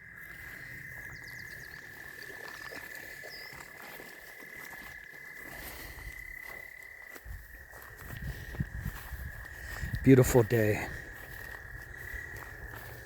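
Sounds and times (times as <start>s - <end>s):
frogs trilling: 0.0s - 13.0s
faint bird chirps: 0.2s - 4.0s.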